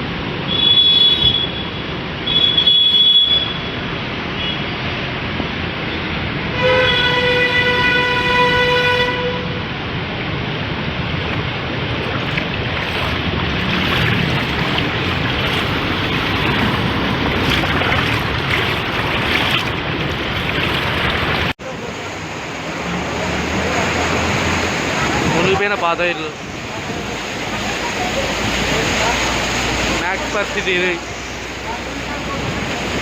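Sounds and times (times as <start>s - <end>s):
vehicle horn: 4.4s - 4.7s, 6.5s - 9.6s
floodwater rushing: 9.8s - 21.6s.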